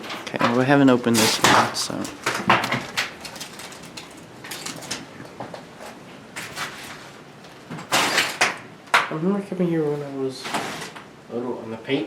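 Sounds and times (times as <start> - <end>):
objects knocking and scraping: 0.0 - 9.1
faint background noise: 0.0 - 12.0.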